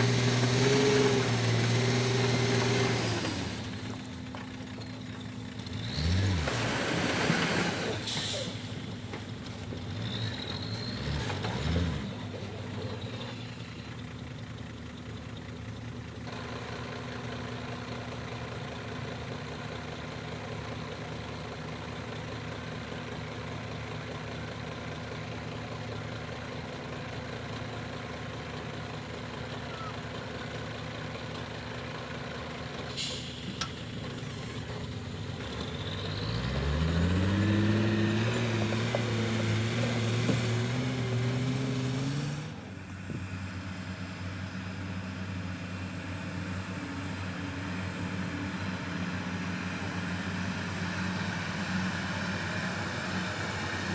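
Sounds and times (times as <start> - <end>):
dump truck engine idling and revving: 0.0 - 53.9
brief hiss: 32.9 - 34.6.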